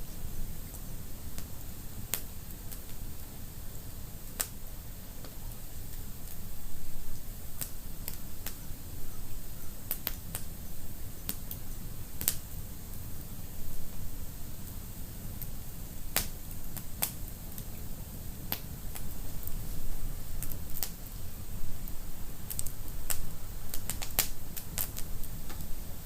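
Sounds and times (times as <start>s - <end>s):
low rumble of flames: 0.0s - 26.0s
wood fire pops and snaps: 0.7s - 3.3s, 4.2s - 4.6s, 7.6s - 8.6s, 9.8s - 12.5s, 16.2s - 17.9s, 18.5s - 21.2s, 21.8s - 25.8s.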